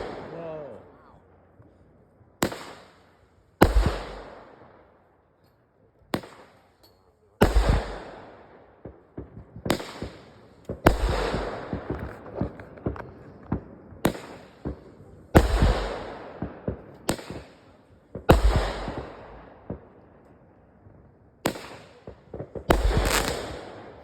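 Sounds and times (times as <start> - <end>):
fireworks banging and crackling: 0.0 - 1.1, 2.4 - 4.9, 6.1 - 24.0.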